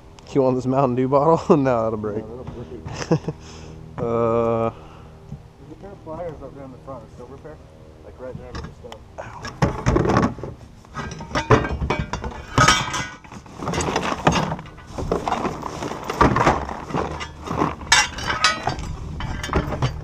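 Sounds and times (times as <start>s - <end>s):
tools knocking and clinking: 9.4s - 20.0s.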